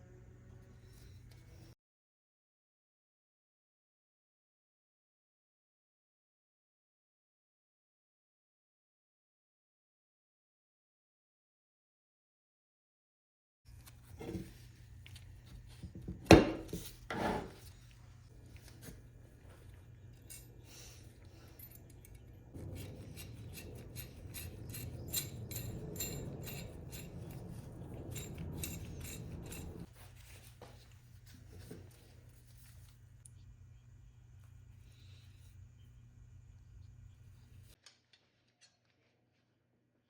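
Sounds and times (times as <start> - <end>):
scraping with fine ticks: 16.8 - 33.4.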